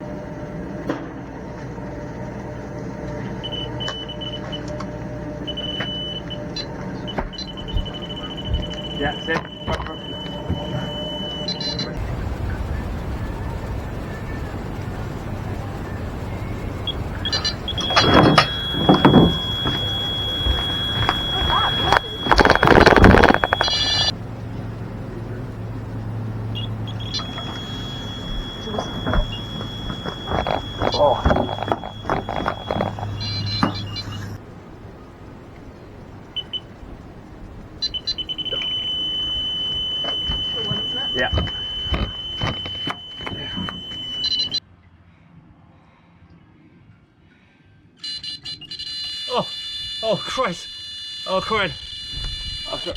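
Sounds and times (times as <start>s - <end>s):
bite alarm beeping: 3.4s - 44.6s.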